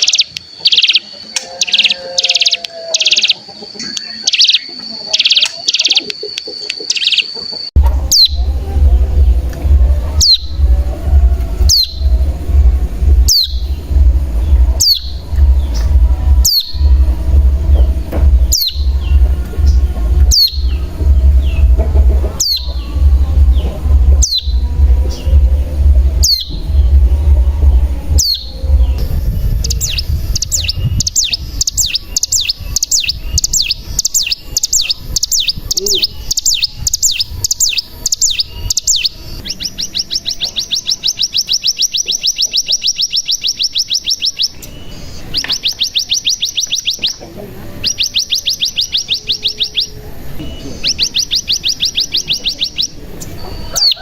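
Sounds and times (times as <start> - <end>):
bird high falling calls: 0.0 - 47.2
low hum: 7.6 - 45.4.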